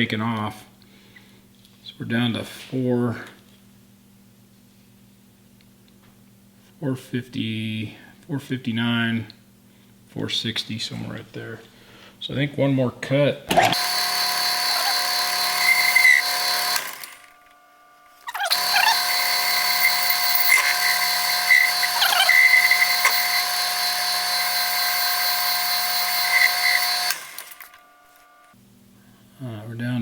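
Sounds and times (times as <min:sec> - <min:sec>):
metal lathe whining: 0:13.6 - 0:17.3, 0:18.2 - 0:28.4.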